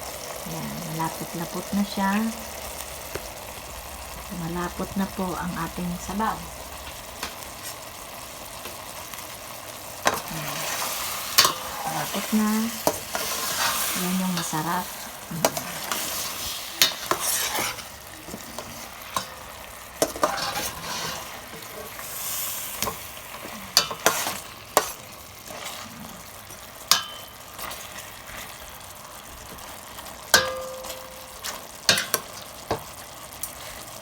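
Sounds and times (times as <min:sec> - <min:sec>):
food simmering and sizzling: 0:00.0 - 0:34.0
utensil scraping and clinking pot: 0:10.0 - 0:28.8, 0:29.5 - 0:34.0.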